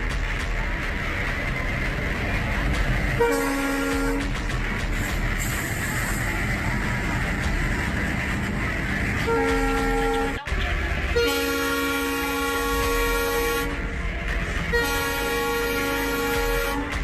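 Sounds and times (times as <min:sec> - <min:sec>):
train rumbling: 0:00.0 - 0:17.0
locomotive horn blasts: 0:03.2 - 0:04.3, 0:09.2 - 0:10.4, 0:11.1 - 0:13.9, 0:14.7 - 0:17.0.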